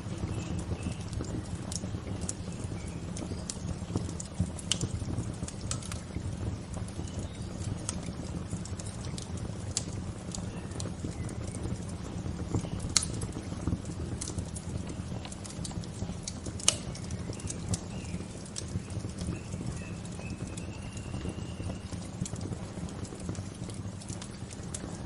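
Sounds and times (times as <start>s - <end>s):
wood fire crackling and popping: 0.0s - 25.0s
faint bird chirps: 16.9s - 22.0s.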